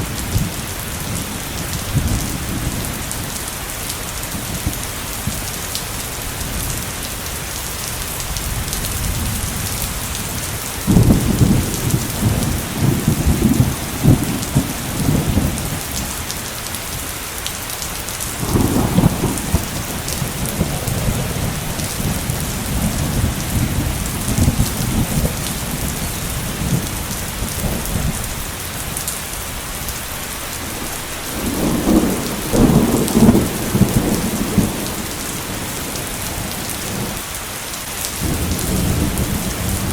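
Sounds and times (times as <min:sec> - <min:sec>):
heavy steady rain hissing: 0:00.0 - 0:39.9
thunder rumbling: 0:08.2 - 0:17.0, 0:18.2 - 0:37.4, 0:38.1 - 0:39.9.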